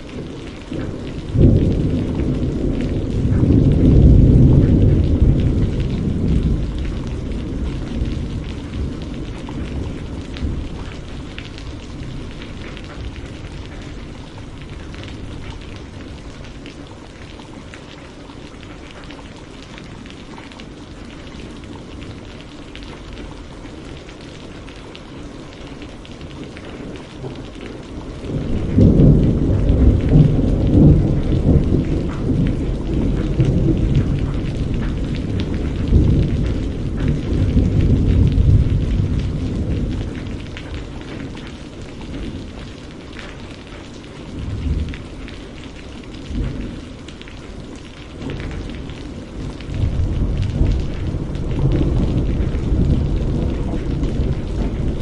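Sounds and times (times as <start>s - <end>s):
rain falling: 0.0s - 55.0s
rolling thunder: 0.1s - 16.6s, 27.7s - 42.7s, 48.2s - 55.0s.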